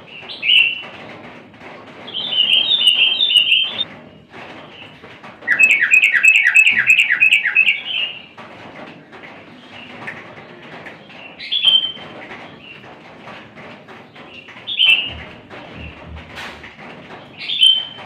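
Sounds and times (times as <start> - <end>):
faint bird chirping: 2.2 - 3.9
bird call falling in pitch: 5.5 - 8.1.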